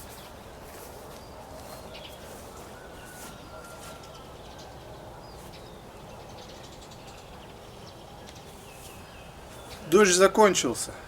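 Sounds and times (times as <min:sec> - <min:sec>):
low outdoor background noise: 0:00.0 - 0:11.0.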